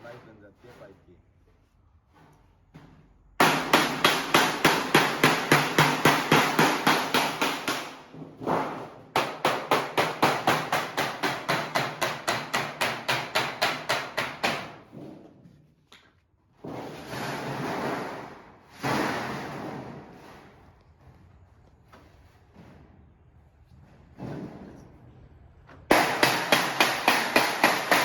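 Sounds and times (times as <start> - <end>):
hammer blows on sheet metal: 3.4 - 15.0, 25.9 - 28.0.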